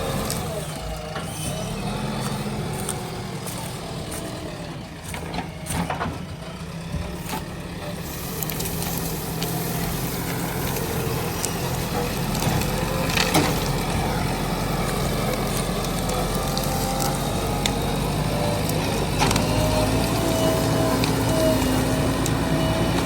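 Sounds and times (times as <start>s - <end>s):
diesel engine running: 0.0s - 23.0s
sharp cracks and knocks: 10.6s - 14.0s.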